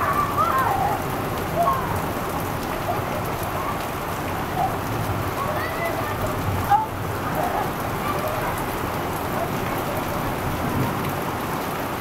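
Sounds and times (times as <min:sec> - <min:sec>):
heavy rain pouring through trees: 0:00.0 - 0:12.0.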